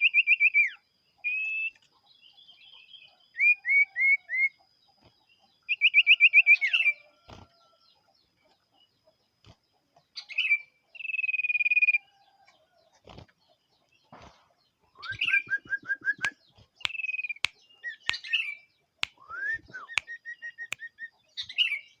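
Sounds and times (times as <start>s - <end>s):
bird singing whistled phrases: 0.0s - 1.8s, 3.4s - 4.6s, 5.7s - 7.0s, 15.0s - 21.9s.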